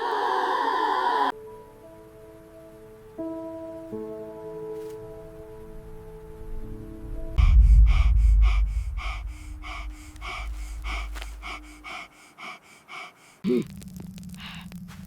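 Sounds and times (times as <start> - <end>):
deep rumble: 6.2 - 12.2
person panting hard: 7.4 - 13.6
person grunting: 8.4 - 13.7.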